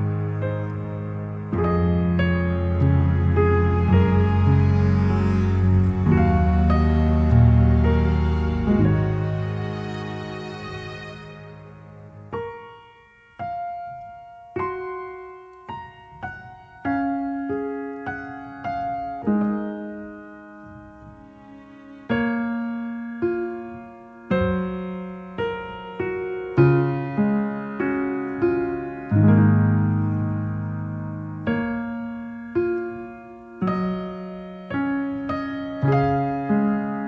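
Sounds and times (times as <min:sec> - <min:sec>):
gentle solo piano: 0:00.0 - 0:37.0.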